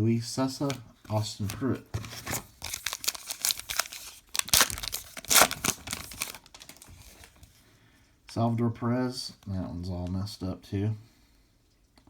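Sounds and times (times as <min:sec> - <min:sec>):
wrapper crinkling: 0:00.6 - 0:07.5
wrapper tearing: 0:01.4 - 0:07.4.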